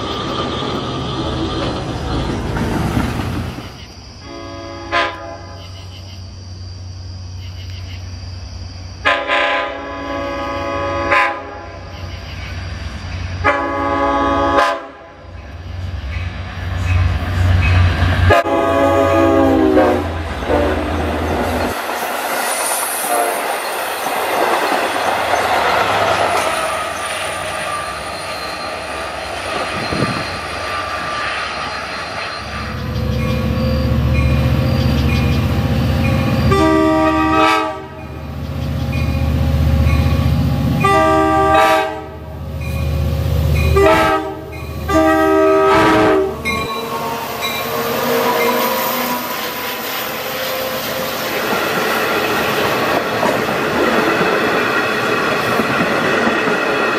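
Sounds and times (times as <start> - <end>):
rail and wheel noise: 0.0 - 56.9
train horn blasts: 4.2 - 5.7, 9.0 - 11.8, 13.4 - 15.2, 18.2 - 21.6, 23.0 - 23.5, 36.1 - 38.2, 40.8 - 42.3, 43.6 - 51.4.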